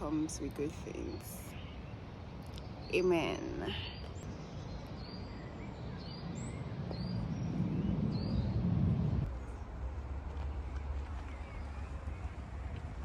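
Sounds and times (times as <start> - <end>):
low rumble: 6.2 - 13.0.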